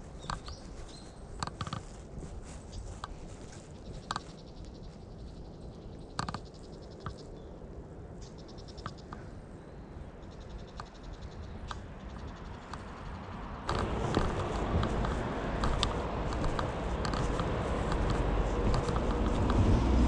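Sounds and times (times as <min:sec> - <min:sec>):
footsteps on woodland path: 0:00.0 - 0:05.4, 0:13.7 - 0:20.0
sharp ticks: 0:10.3 - 0:19.8
low rumble: 0:13.6 - 0:20.0.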